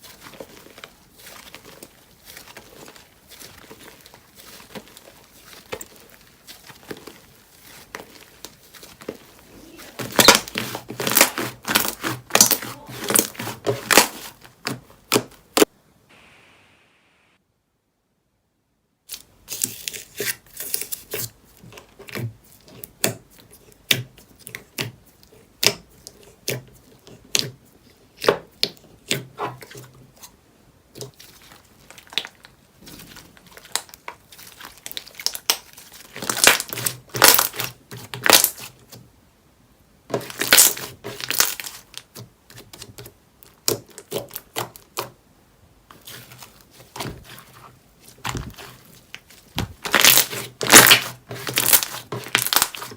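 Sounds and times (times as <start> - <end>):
slime squeezed clicking and crackling: 49.8 - 52.9.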